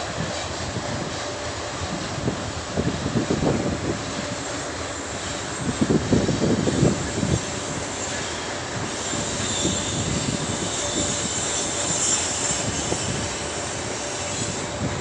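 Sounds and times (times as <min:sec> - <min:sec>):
distant freight train rumble: 0:00.0 - 0:15.0
wind buffeting microphone: 0:00.0 - 0:15.0.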